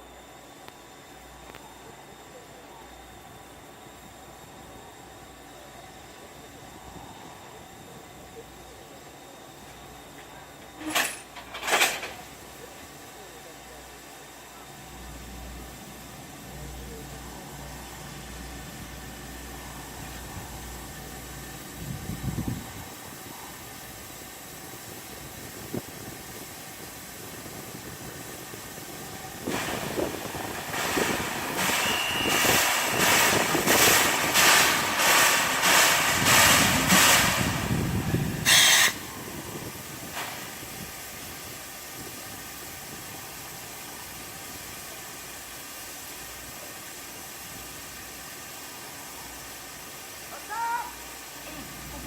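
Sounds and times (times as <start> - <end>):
steam locomotive chuffing: 1.8 - 52.0
hissing steam: 4.3 - 52.0
short sharp steam hiss: 29.2 - 52.0.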